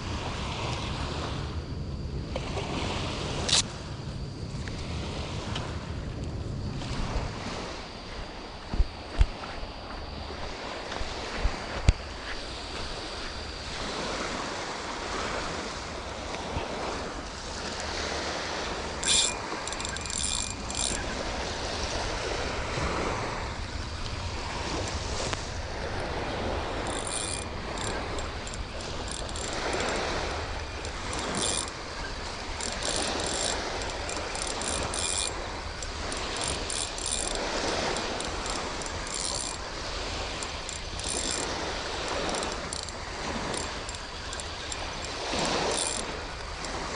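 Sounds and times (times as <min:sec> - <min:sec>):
light surf washing: 0:09.7 - 0:46.9
short high-pitched clicks: 0:19.0 - 0:21.1.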